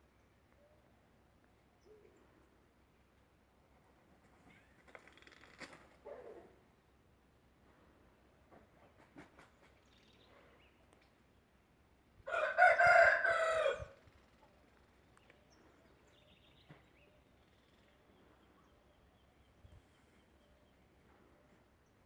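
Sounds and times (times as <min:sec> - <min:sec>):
rooster crowing: 0:12.3 - 0:14.0.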